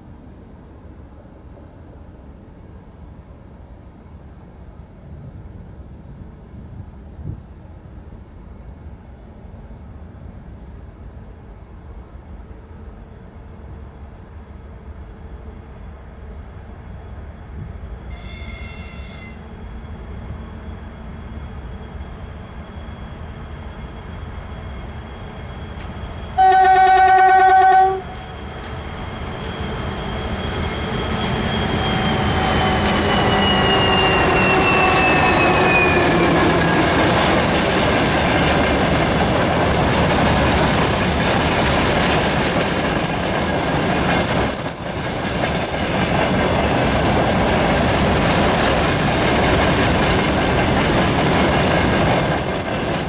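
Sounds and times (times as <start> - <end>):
locomotive whine passing: 14.8 - 53.0
locomotive horn: 18.0 - 19.6, 25.8 - 28.2
freight wagons rumbling on rails: 21.1 - 53.0.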